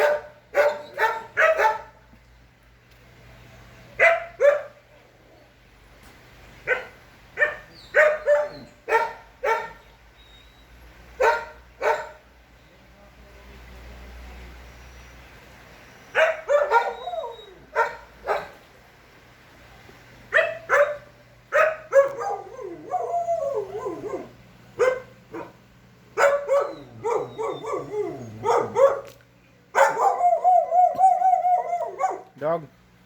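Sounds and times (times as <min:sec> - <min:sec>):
dog barking and yipping: 0:00.0 - 0:02.0, 0:04.0 - 0:04.8, 0:06.6 - 0:09.9, 0:11.2 - 0:12.2, 0:16.1 - 0:18.6, 0:20.3 - 0:25.6, 0:26.2 - 0:32.4.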